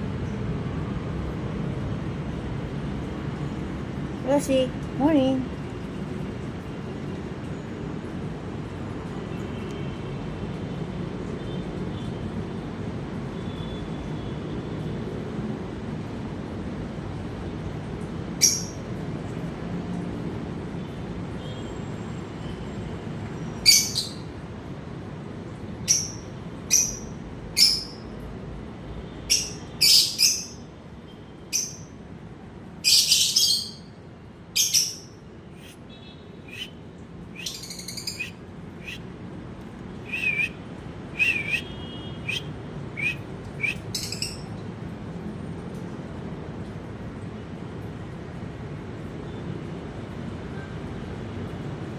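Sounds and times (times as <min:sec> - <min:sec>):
birds chirping: 0:36.4 - 0:39.0, 0:40.0 - 0:40.6, 0:41.2 - 0:44.4.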